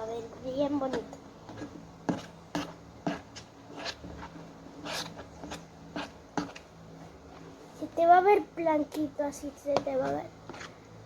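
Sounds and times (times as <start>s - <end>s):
slime being stirred on a plate: 0.5s - 7.9s, 9.3s - 11.0s.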